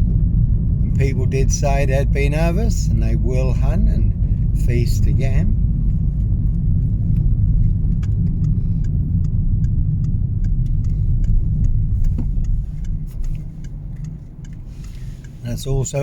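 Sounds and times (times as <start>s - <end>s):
car driving on road rumble: 0.0s - 16.0s
faint ticks: 5.8s - 16.0s.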